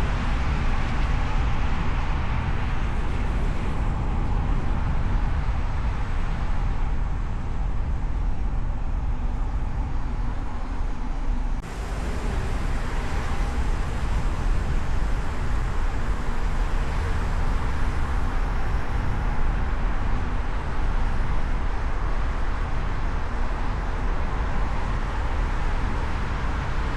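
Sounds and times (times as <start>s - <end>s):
wind and tyre rumble: 0.0s - 26.9s
city traffic hiss: 10.3s - 26.9s.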